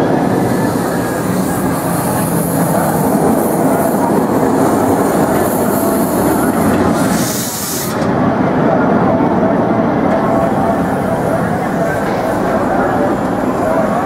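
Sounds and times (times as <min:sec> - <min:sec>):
high steam hiss: 0:00.0 - 0:08.2
train wheels rattling on rails: 0:00.0 - 0:14.0.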